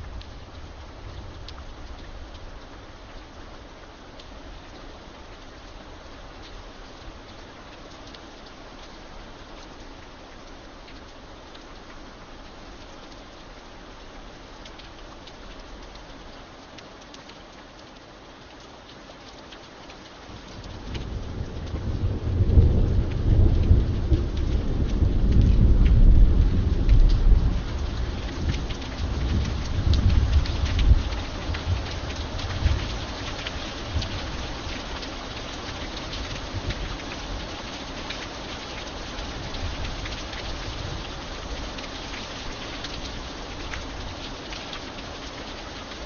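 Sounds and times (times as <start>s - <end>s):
steady rain with ticking drops: 0.0s - 46.0s
deep rumble of thunder: 20.3s - 33.0s.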